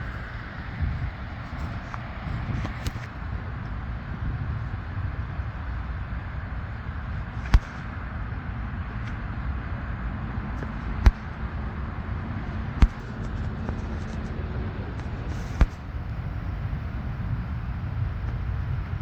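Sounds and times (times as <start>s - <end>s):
distant road traffic rumble: 0.0s - 19.0s
sharp knocks: 12.8s - 14.2s.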